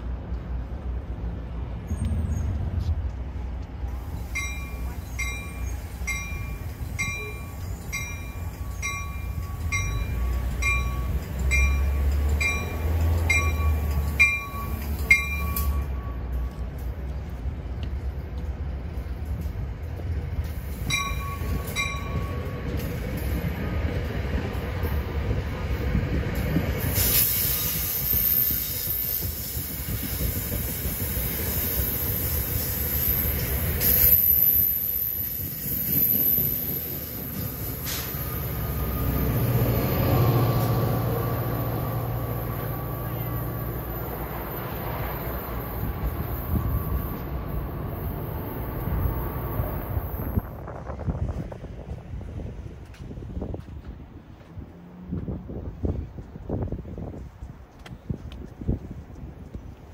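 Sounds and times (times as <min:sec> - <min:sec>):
train wheels rumbling on rail: 0:00.0 - 0:59.9
high-pitched metallic squeal: 0:45.5 - 0:50.3.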